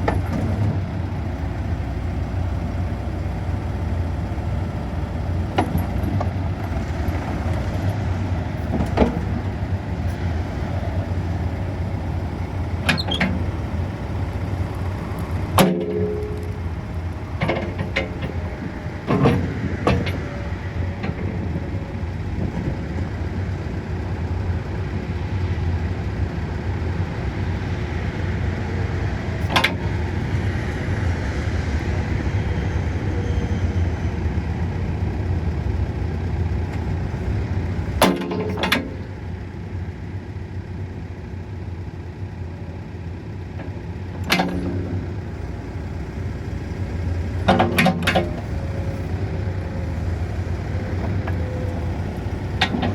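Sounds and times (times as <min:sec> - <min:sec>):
diesel engine running: 0:00.0 - 0:52.9
metal clanks from machine: 0:15.5 - 0:16.6, 0:17.3 - 0:20.4, 0:38.0 - 0:39.1, 0:44.2 - 0:45.0, 0:47.3 - 0:49.1.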